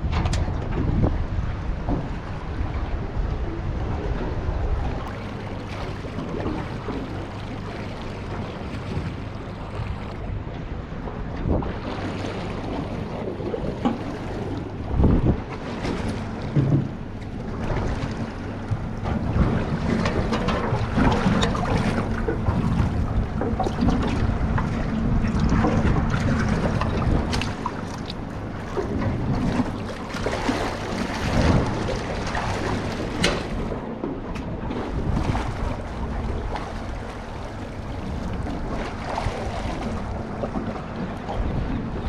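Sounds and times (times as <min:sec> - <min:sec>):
water slapping boat hull: 0:00.0 - 0:42.0
wind buffeting microphone: 0:00.0 - 0:42.0
knocks in boat: 0:12.5 - 0:35.8.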